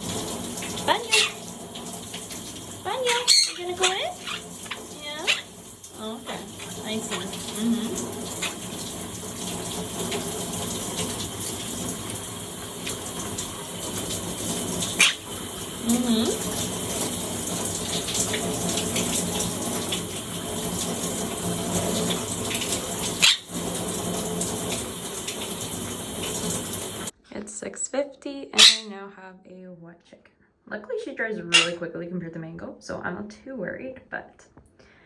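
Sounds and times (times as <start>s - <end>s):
shower water spraying: 0.0s - 27.2s.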